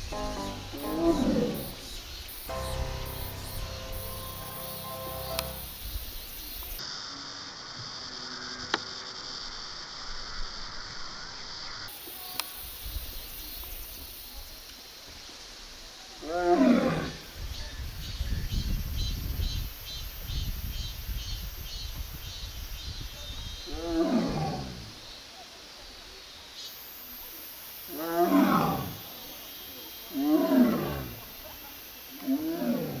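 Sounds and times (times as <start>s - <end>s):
tiger calling: 0.0s - 6.0s.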